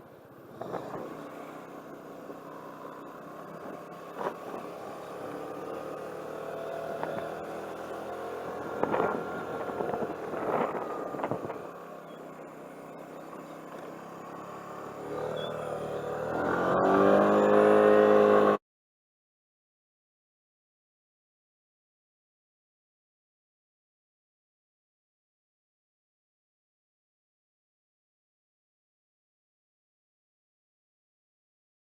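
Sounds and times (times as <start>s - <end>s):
vehicle engine running: 0.0s - 18.6s.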